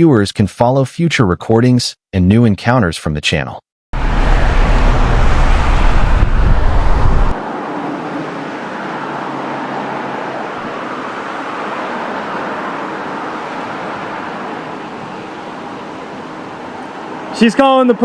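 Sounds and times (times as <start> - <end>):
heavy low rumble: 4.0 - 7.4.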